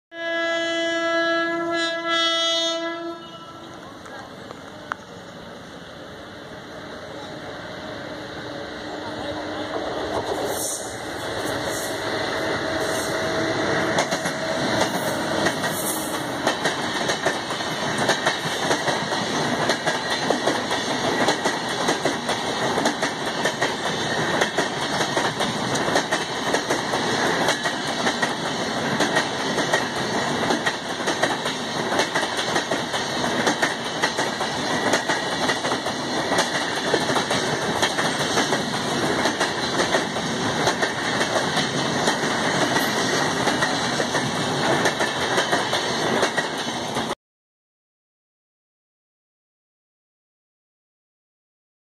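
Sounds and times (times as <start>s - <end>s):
electric locomotive passing: 0.2s - 47.2s
train wheels clattering: 9.7s - 47.1s.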